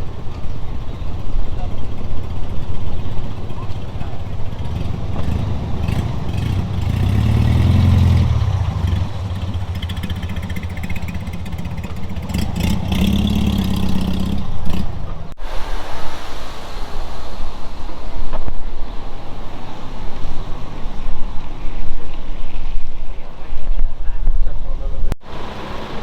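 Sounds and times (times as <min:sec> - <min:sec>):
supercar engine deep rumble: 0:00.0 - 0:15.4
rushing noise: 0:15.3 - 0:24.1, 0:24.9 - 0:26.0.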